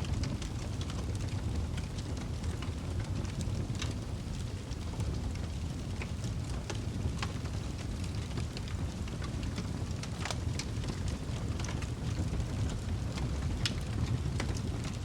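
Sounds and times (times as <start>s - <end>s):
fire popping and snapping: 0.0s - 15.0s
fire rumbling: 0.0s - 15.0s.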